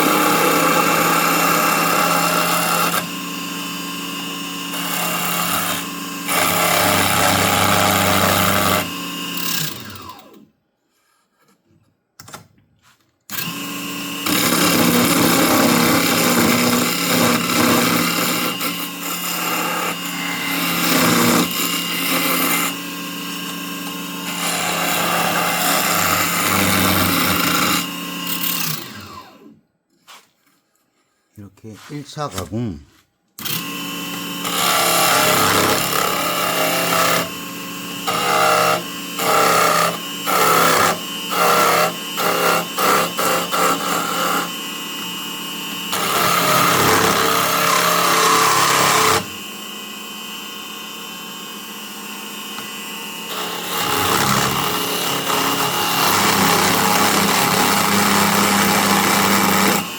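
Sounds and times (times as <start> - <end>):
wood lathe motor running: 0.0 - 10.4, 13.3 - 29.5, 33.4 - 59.9
turning tool cutting wood: 0.0 - 11.7, 13.3 - 30.3, 31.6 - 59.9.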